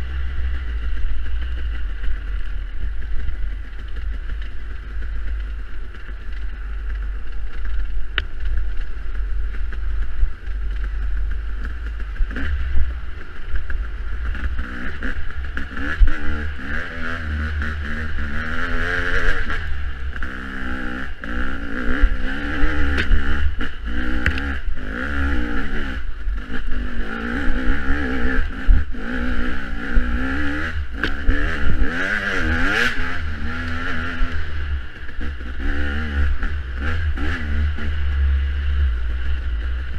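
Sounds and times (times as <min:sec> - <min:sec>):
dirt bike engine revving: 0:09.2 - 0:39.9.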